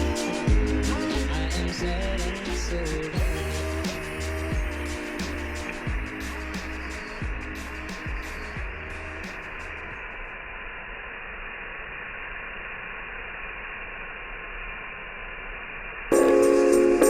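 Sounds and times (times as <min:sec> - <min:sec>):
music with tambourine: 0:00.0 - 0:09.6, 0:16.1 - 0:17.0
muffled hiss: 0:00.0 - 0:17.0.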